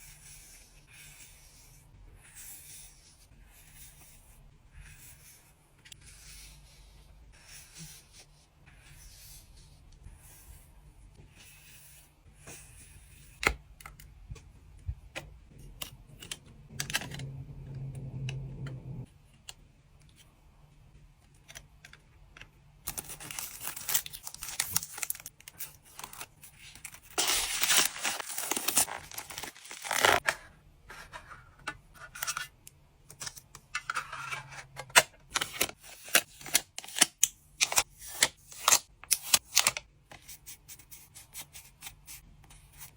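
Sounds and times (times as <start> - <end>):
packing material crinkling: 22.9 - 30.3.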